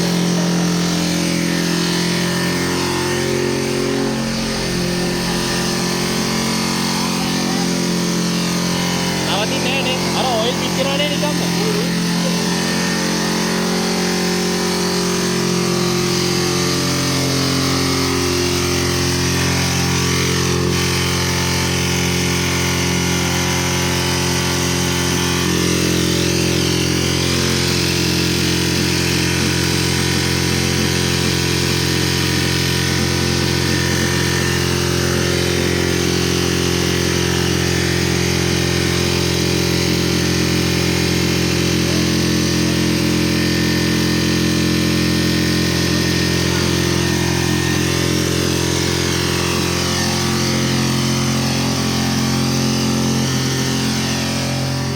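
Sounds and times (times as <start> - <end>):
diesel engine racing: 0.0 - 22.9.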